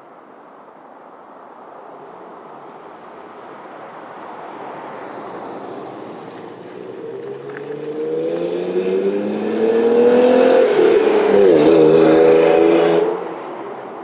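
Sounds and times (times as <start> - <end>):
car exhaust accelerating: 6.0 - 13.4.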